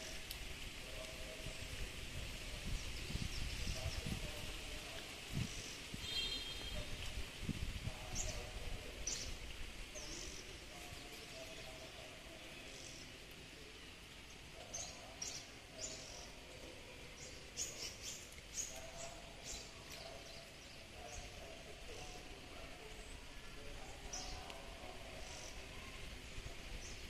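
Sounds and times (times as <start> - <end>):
small birds chirping: 7.9 - 26.0.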